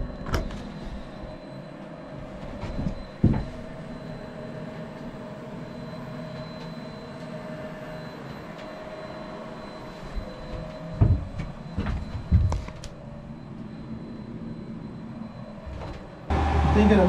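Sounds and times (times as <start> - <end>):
heater blower fan humming: 0.0 - 17.0
heavy thump: 11.0 - 12.5.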